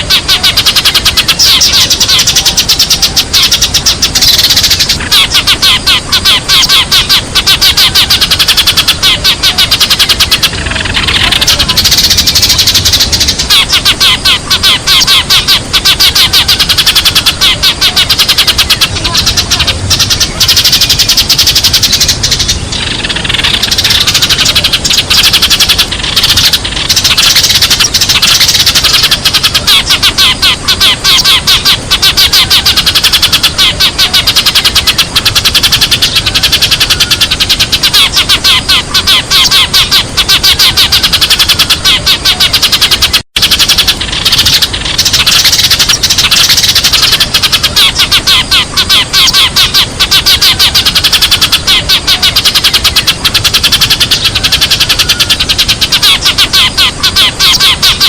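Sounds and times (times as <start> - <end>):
sparrows chirping: 0.0 - 58.0.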